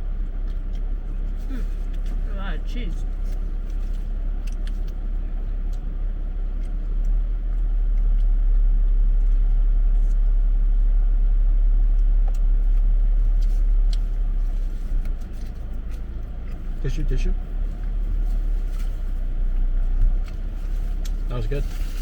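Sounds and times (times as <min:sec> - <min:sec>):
steady low rumble: 0:00.0 - 0:22.0
faint eating clicks: 0:03.1 - 0:10.2.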